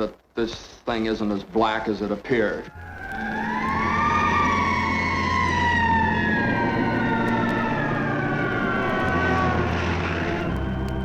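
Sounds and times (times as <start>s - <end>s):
siren wailing: 2.6s - 11.0s.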